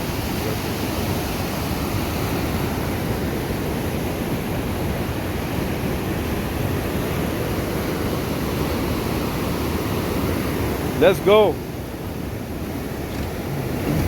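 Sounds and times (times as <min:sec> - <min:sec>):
rushing mountain stream: 0:00.0 - 0:14.0.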